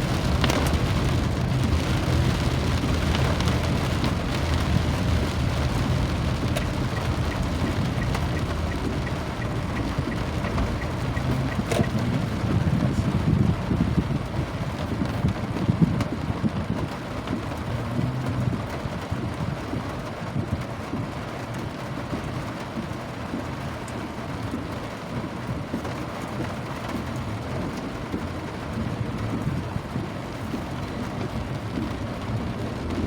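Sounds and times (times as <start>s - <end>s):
low rumble: 0.0s - 19.8s
steady rain: 0.0s - 33.0s.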